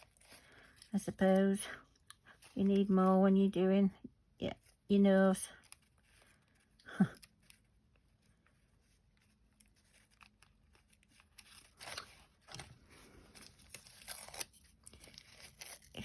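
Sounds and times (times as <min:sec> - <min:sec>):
tissue paper rustling: 0:05.6 - 0:16.0.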